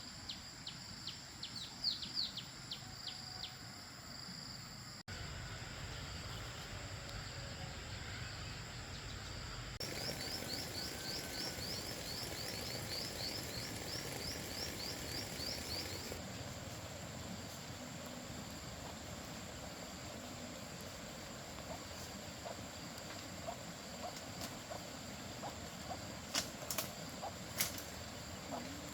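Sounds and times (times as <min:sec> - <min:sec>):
steady background hiss: 0:00.0 - 0:28.9
birds chirping: 0:09.8 - 0:16.6.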